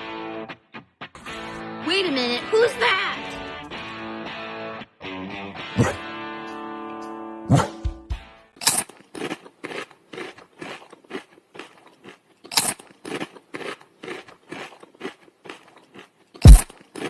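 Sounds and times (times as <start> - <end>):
dog crunching a hard treat: 8.6 - 17.0.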